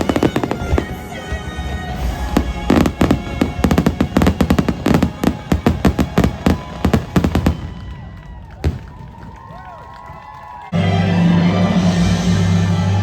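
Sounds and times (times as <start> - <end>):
music: 0.0 - 8.4, 10.7 - 13.0
fireworks bangs and crackles: 0.0 - 10.4.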